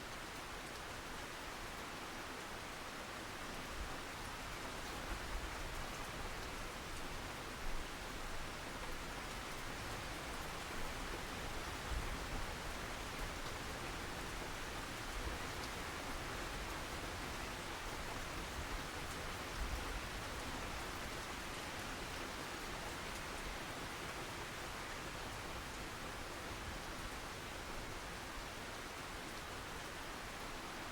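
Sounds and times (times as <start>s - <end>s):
rain hiss: 0.0s - 30.9s.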